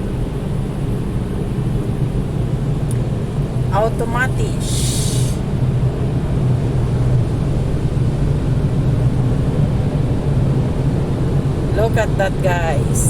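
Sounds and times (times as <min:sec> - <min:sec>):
spray hiss: 0:04.6 - 0:05.4.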